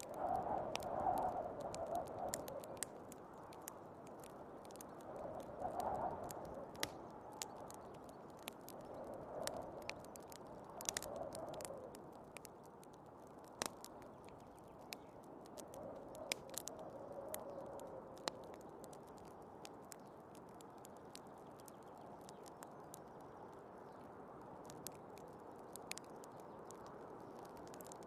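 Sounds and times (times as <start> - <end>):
wind rushing in gusts: 0.0 - 2.8, 5.0 - 7.3
wood fire crackling and popping: 0.0 - 28.0.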